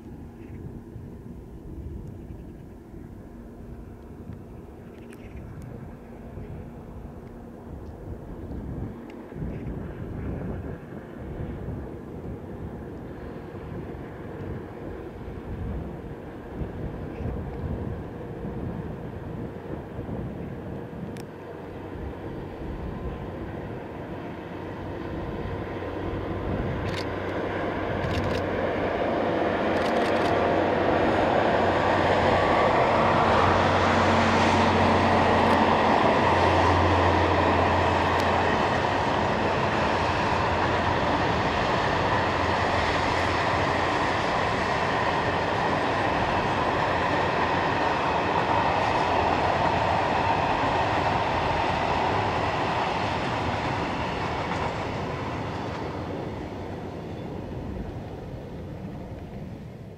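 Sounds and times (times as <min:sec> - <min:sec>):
locomotive humming: 0:00.0 - 0:59.9.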